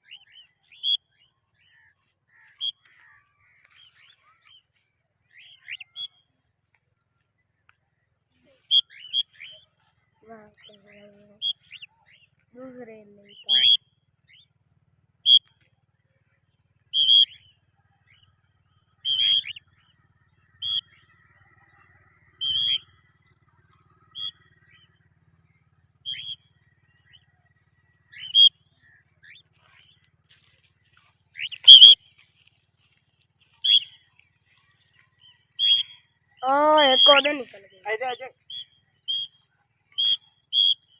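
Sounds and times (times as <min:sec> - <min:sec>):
cockatiel contact calls: 0:01.6 - 0:04.6, 0:28.1 - 0:32.5, 0:33.5 - 0:34.1, 0:35.2 - 0:36.0.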